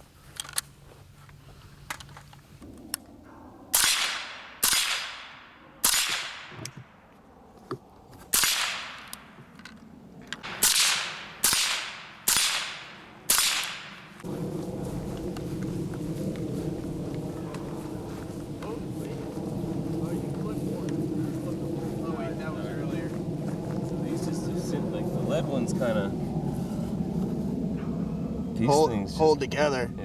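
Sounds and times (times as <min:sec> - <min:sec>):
steady low noise: 0:02.5 - 0:30.0
suppressed rifle shots: 0:03.7 - 0:06.7, 0:08.3 - 0:09.2, 0:10.4 - 0:14.2.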